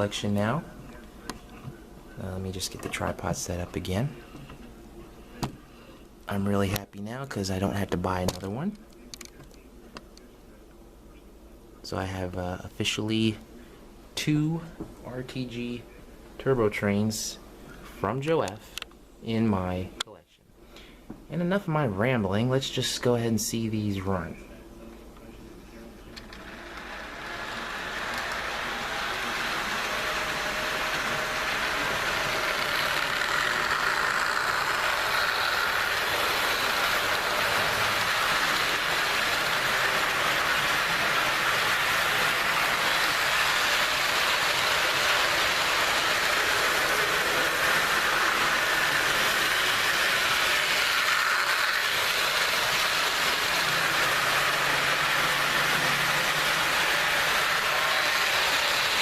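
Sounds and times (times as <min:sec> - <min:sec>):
model train whirring: 0:26.1 - 0:59.0.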